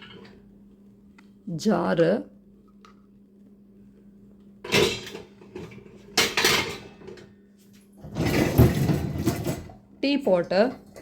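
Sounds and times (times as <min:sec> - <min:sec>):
dishes clattering: 0:04.6 - 0:07.3.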